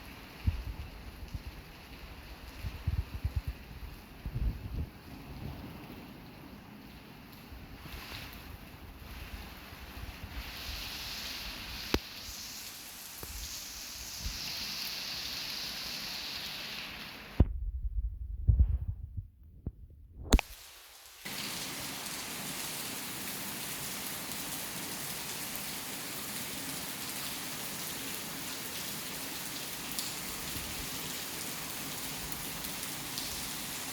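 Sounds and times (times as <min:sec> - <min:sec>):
torrential rain pouring: 0:00.0 - 0:17.4, 0:20.4 - 0:33.9
muffled low thumps: 0:17.4 - 0:20.4.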